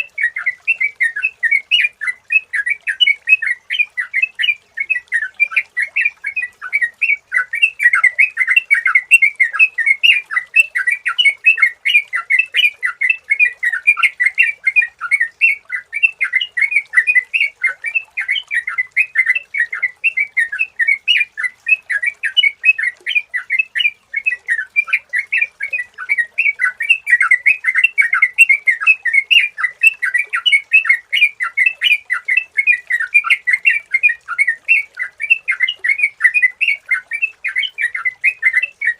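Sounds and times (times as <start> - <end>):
bulbul chirping song: 0.0 - 38.9.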